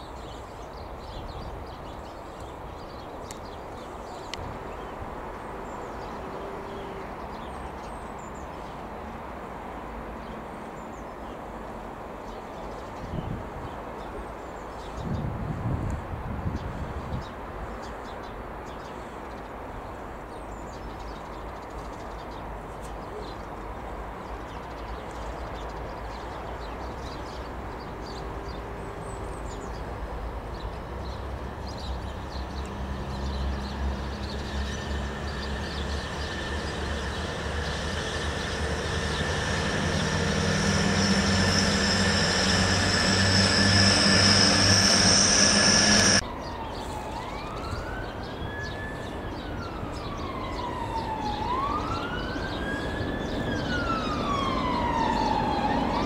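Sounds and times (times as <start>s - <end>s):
train passing with hum and whine: 0.0s - 18.6s, 19.4s - 56.0s
siren rising and falling: 32.4s - 48.8s, 49.7s - 56.0s.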